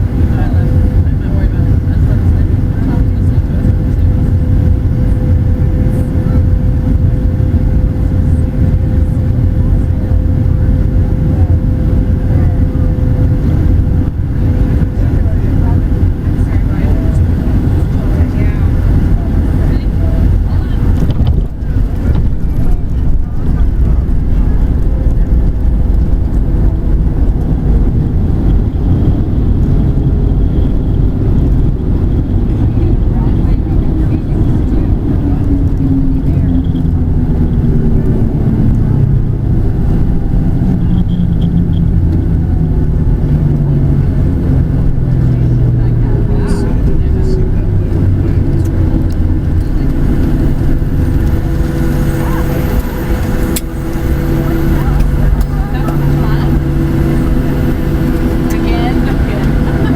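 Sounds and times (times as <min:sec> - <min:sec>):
jet engine cabin rumble: 0:00.0 - 0:59.9.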